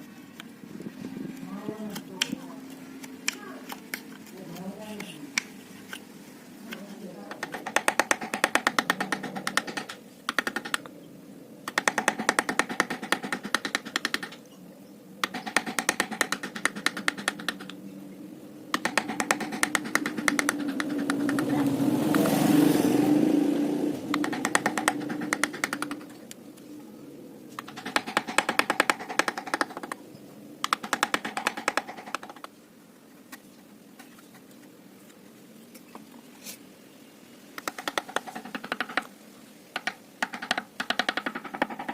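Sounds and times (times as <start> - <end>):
mallet tapping chisel into wood: 18.7 - 21.5, 24.1 - 26.0
passing engine: 18.9 - 26.4.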